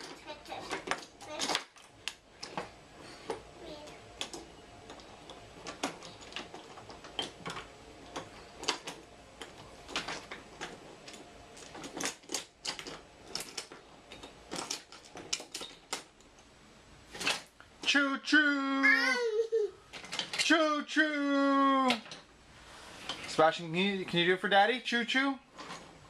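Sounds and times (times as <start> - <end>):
toy train pieces clicking: 0.0 - 2.5.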